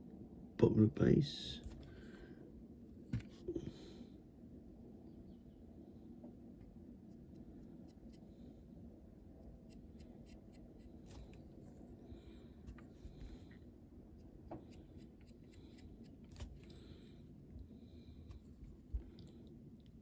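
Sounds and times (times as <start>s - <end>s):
faint scratching: 9.4s - 13.6s.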